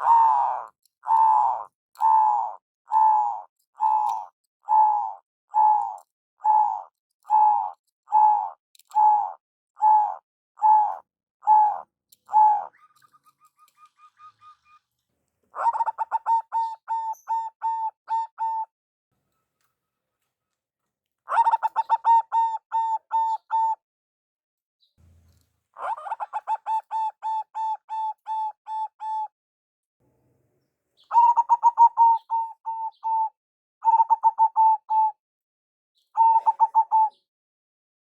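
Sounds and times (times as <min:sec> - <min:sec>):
doves cooing: 0:00.0 - 0:14.9, 0:15.5 - 0:18.7, 0:21.3 - 0:23.8, 0:25.8 - 0:29.2, 0:31.1 - 0:35.1, 0:36.2 - 0:37.2.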